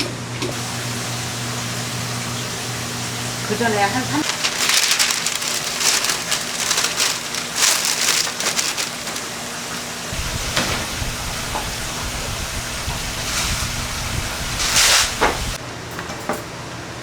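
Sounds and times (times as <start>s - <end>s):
dough sizzling in hot oil: 9.0s - 15.6s
low rumble: 10.1s - 15.6s.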